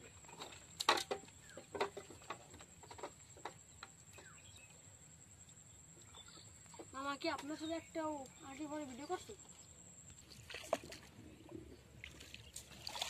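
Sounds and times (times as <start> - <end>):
bamboo poles clicking and knocking: 0.0 - 4.4.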